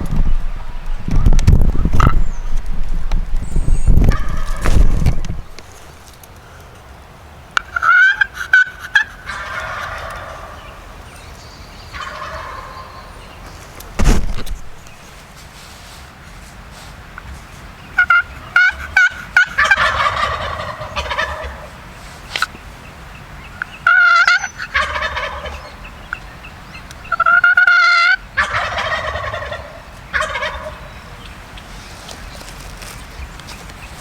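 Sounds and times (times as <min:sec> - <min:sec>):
turkey gobbling: 0:04.0 - 0:05.9, 0:07.6 - 0:11.1, 0:11.9 - 0:13.5, 0:18.0 - 0:21.9, 0:23.5 - 0:32.2.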